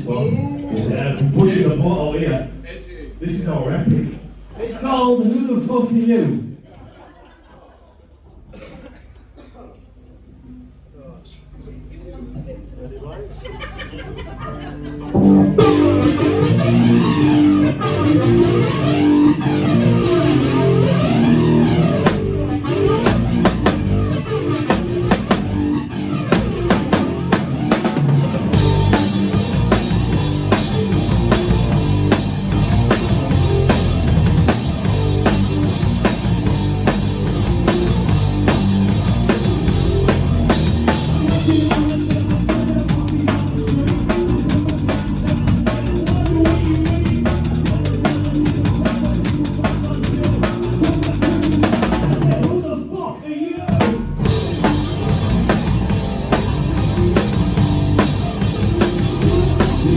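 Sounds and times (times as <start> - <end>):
live rock band playing: 14.8 - 52.6, 53.7 - 59.9
drum kit with cymbals: 15.2 - 52.7, 53.7 - 59.9.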